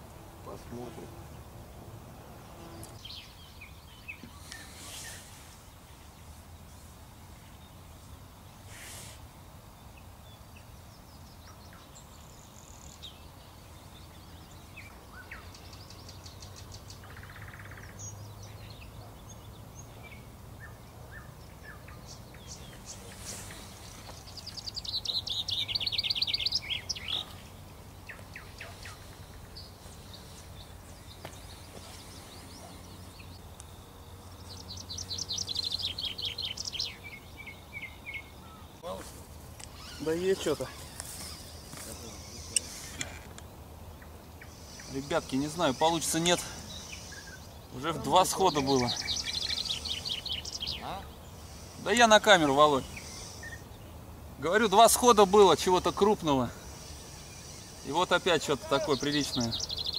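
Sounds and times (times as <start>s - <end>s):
songbird singing: 0.0s - 59.9s
short bird chirps: 39.7s - 43.0s.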